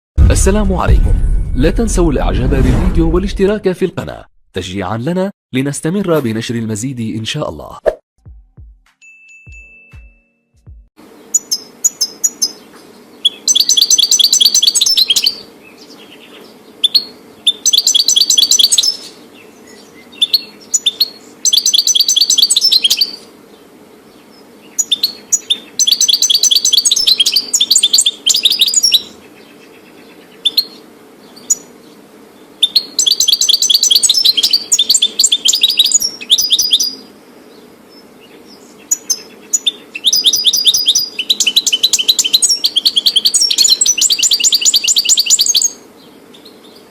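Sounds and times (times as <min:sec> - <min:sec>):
finch singing high twittering: 0:11.2 - 0:23.2, 0:24.2 - 0:31.8, 0:32.6 - 0:46.9.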